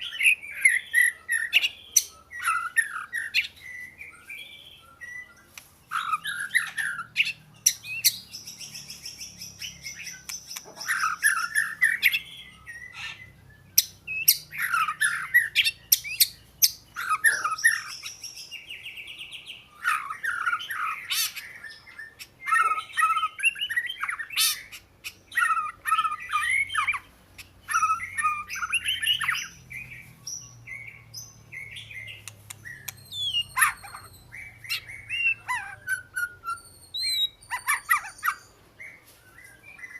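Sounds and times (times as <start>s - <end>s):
bird singing whistled phrases: 0.0s - 27.0s, 27.6s - 39.9s
sharp bird clicks: 9.6s - 12.2s, 32.0s - 34.9s.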